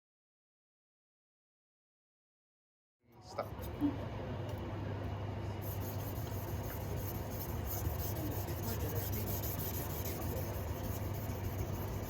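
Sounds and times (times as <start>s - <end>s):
steady low hum: 3.0s - 12.0s
knife scraping on whetstone: 5.7s - 12.0s.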